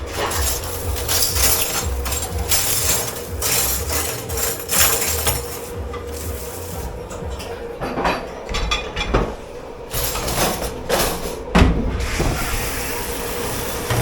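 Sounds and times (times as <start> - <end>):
dishes being scrubbed: 0.0 - 9.3.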